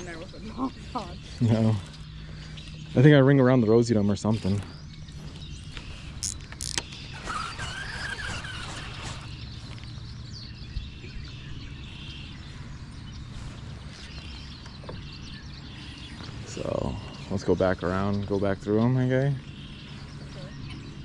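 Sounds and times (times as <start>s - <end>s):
birds chirping: 0.0s - 21.0s
low hum: 0.0s - 21.0s
sharp clicks: 6.2s - 9.3s.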